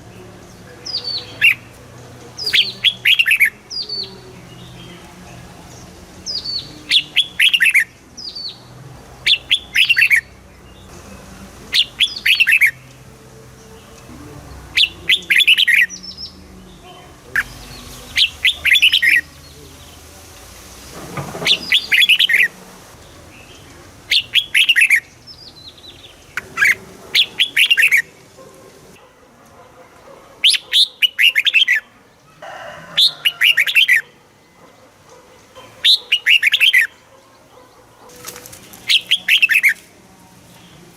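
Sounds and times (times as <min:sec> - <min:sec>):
bird singing falling notes: 0:20.8 - 0:28.3.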